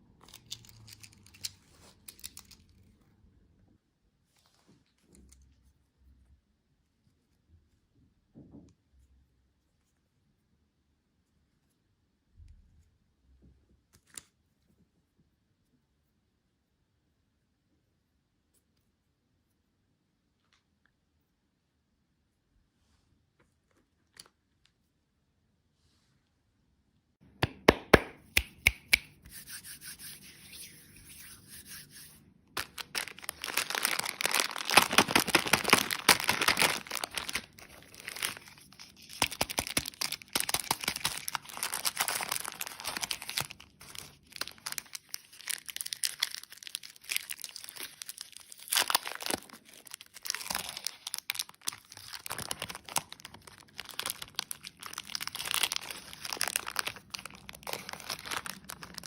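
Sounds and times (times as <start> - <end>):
plastic wrappers crinkling and tearing: 32.6 - 59.0.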